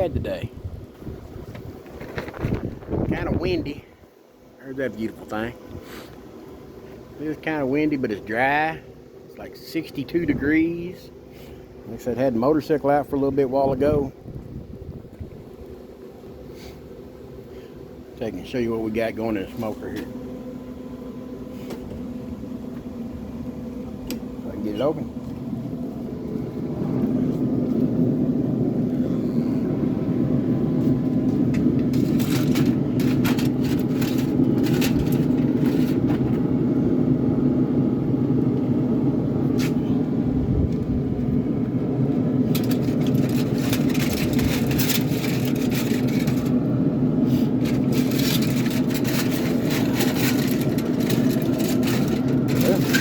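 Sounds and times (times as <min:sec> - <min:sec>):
engine humming: 0:00.8 - 0:53.0
metal clicks and scrapes: 0:31.5 - 0:36.0, 0:42.5 - 0:46.5, 0:47.6 - 0:53.0.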